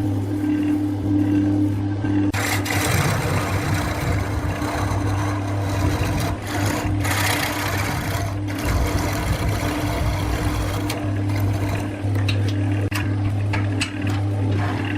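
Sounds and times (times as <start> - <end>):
turning tool scraping wood: 2.3 - 12.1
wood lathe motor hum: 2.3 - 12.9.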